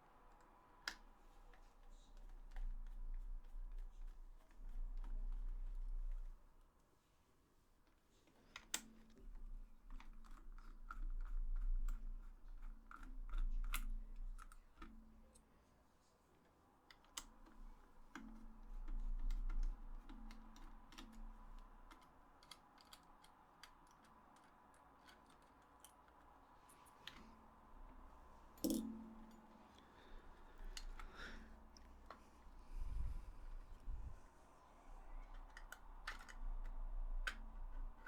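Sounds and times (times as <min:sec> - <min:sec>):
small plastic clicks and taps: 0:16.9 - 0:26.3.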